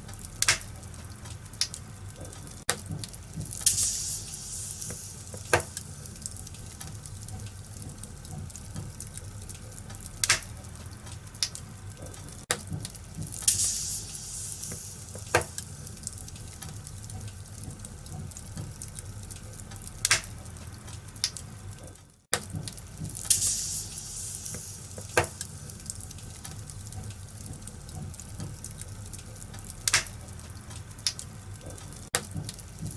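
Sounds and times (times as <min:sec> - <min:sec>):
logs popping: 0:00.0 - 0:21.5, 0:22.4 - 0:32.9
wood fire crackling: 0:00.0 - 0:32.9
fire hiss: 0:03.0 - 0:11.6, 0:12.8 - 0:18.1, 0:22.8 - 0:31.8.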